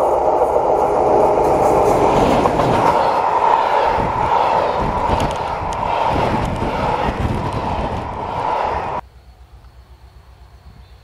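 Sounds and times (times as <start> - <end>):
train wheels rumbling on rails: 0.0 - 9.0.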